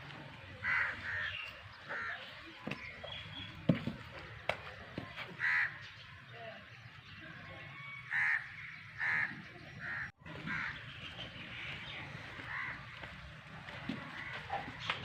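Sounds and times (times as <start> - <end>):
bird calling: 0.6 - 3.9, 7.8 - 15.0.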